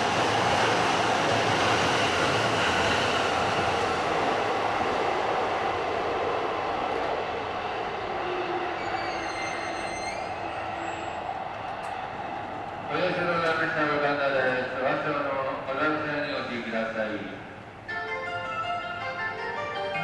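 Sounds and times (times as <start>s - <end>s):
electric train running past: 0.0s - 14.0s.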